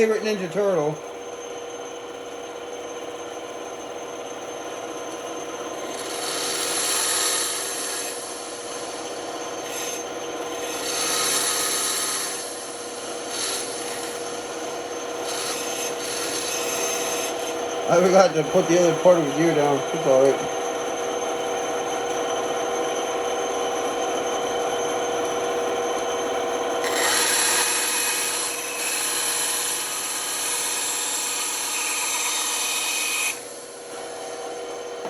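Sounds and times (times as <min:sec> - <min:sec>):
band saw cutting wood: 0:00.0 - 0:00.9, 0:05.8 - 0:20.6, 0:26.6 - 0:34.2.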